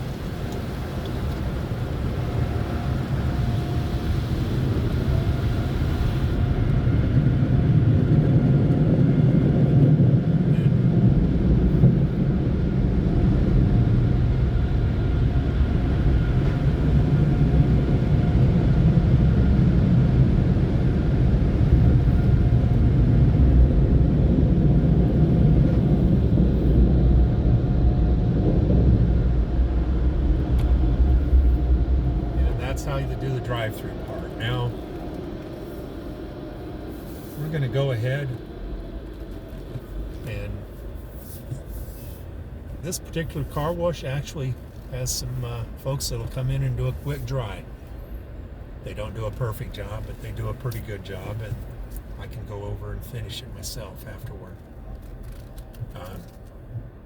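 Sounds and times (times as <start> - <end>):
car wash rumble: 0.0 - 57.0
deep low rumble: 2.0 - 37.6.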